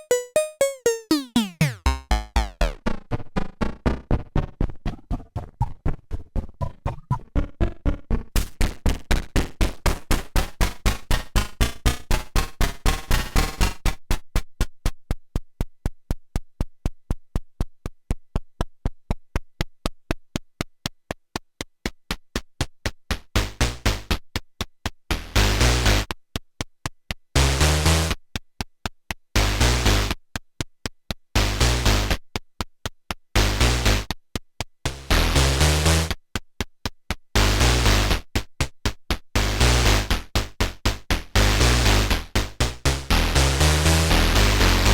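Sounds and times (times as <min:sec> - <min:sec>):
sequenced synthesizer pattern: 0:00.0 - 0:04.0.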